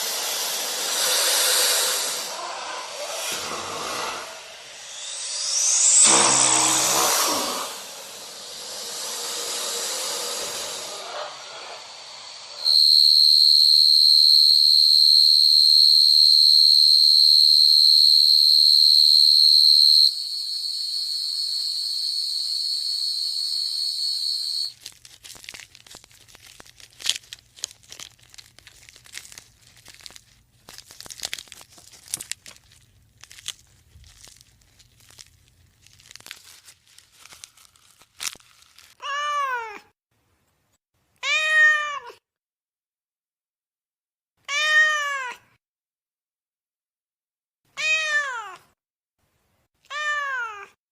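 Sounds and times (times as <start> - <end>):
steady high whistle tone: 0.5 - 24.7
crackling and clicks: 24.7 - 39.0
cat meowing: 39.0 - 39.9, 41.2 - 42.2, 44.4 - 45.4, 47.7 - 48.7, 49.9 - 50.8.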